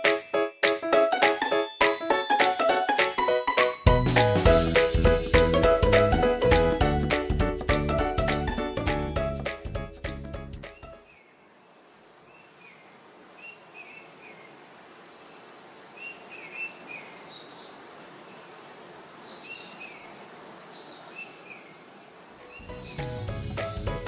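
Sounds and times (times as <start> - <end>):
small birds chirping: 10.6 - 24.0
background hiss: 11.0 - 23.9.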